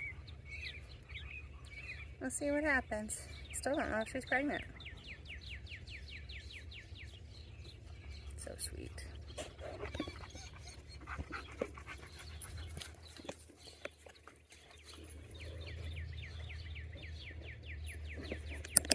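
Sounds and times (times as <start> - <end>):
dog panting: 7.7 - 18.7.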